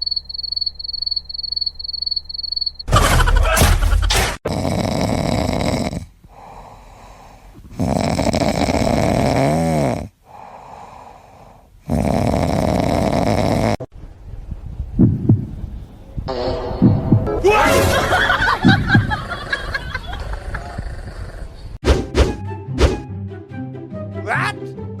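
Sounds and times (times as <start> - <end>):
loud snoring: 4.4 - 6.7, 7.7 - 10.2, 11.8 - 13.9
quiet breathing: 5.1 - 9.2, 10.0 - 12.8.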